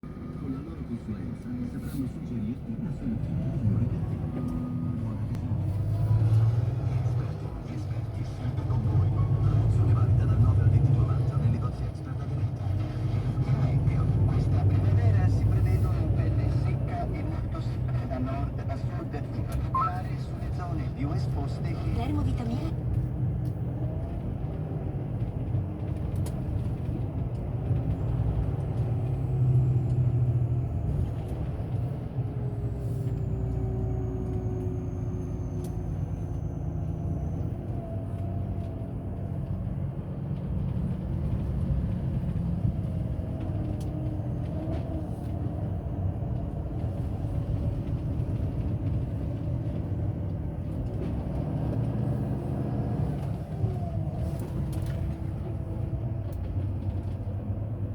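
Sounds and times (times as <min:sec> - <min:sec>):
truck engine and road rumble: 0:00.0 - 0:57.9.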